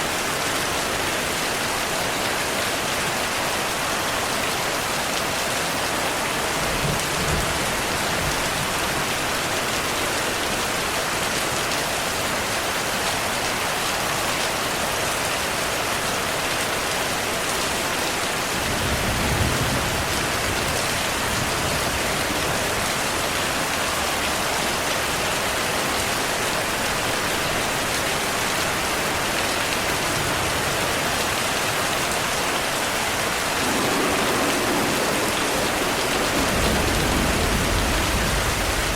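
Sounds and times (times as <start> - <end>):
heavy rain falling: 0.0 - 38.9
distant thunder rumble: 32.9 - 38.9.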